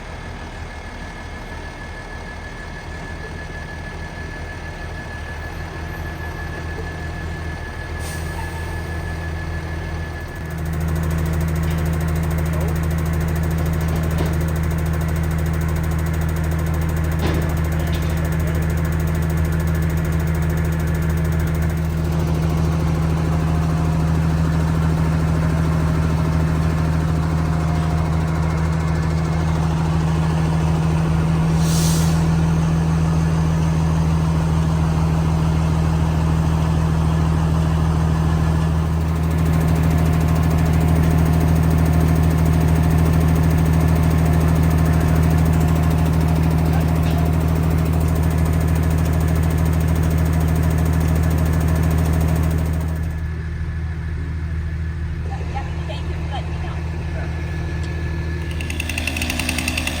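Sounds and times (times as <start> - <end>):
large engine humming: 0.0 - 60.0
short hiss: 31.6 - 32.3.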